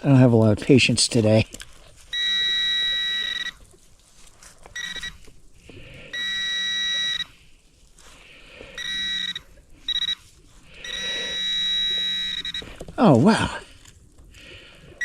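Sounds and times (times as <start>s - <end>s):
digging and rustling in soil: 0.0s - 15.0s
electronic alarm tone: 2.1s - 3.6s, 4.8s - 5.2s, 6.1s - 7.4s, 8.8s - 10.2s, 10.8s - 12.8s.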